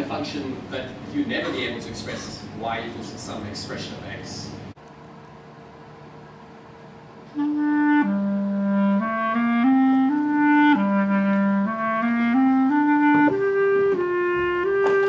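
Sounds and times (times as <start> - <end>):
clarinet slow melody: 7.3 - 15.0.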